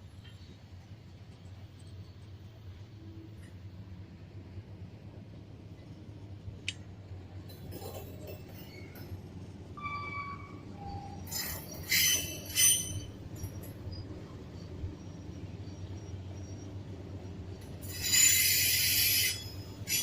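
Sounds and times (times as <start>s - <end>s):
train rumbling on rails: 0.0s - 20.0s
high metallic screeches: 9.8s - 14.0s, 17.8s - 20.0s.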